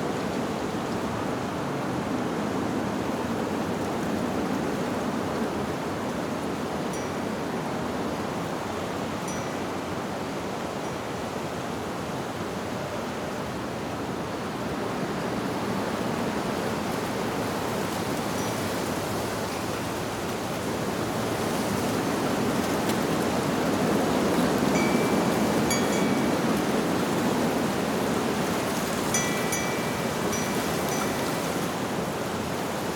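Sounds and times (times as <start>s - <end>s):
wind through tree leaves: 0.0s - 32.9s
wind chimes tinkling: 9.3s - 9.6s, 24.7s - 26.8s, 29.1s - 32.1s.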